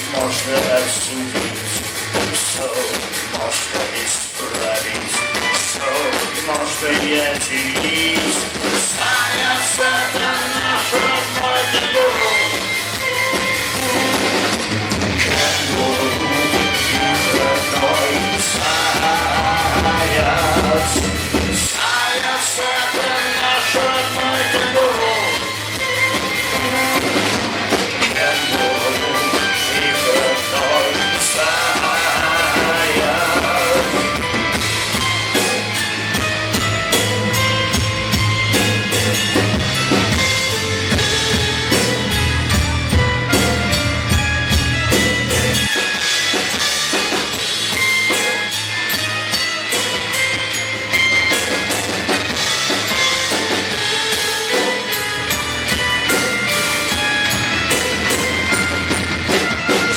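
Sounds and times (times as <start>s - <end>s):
drum kit bass drum and snare: 0.0s - 59.9s
live rock band playing: 0.0s - 59.9s
deep low bass part: 15.3s - 21.7s.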